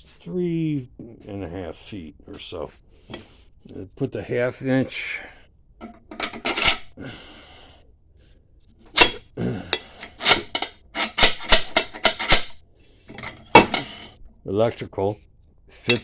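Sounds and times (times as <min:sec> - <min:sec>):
metal clinks and scrapes: 0:05.8 - 0:07.0, 0:08.9 - 0:14.2, 0:15.7 - 0:16.0.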